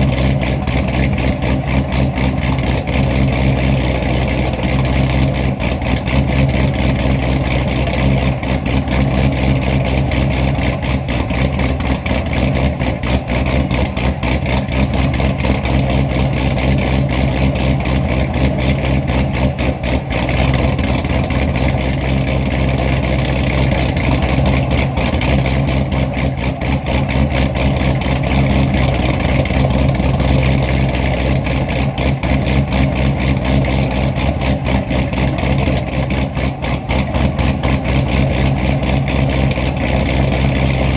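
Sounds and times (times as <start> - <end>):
car engine idling with choppy lope: 0.0 - 40.9.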